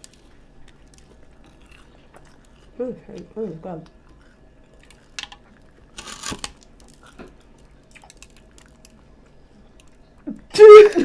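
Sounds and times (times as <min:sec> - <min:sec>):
crunchy chewing: 0:00.0 - 0:10.3.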